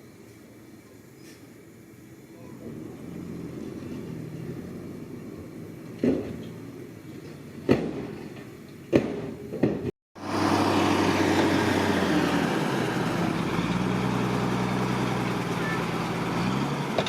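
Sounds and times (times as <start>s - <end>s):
heavy diesel engine running: 2.5s - 8.7s, 10.2s - 17.0s.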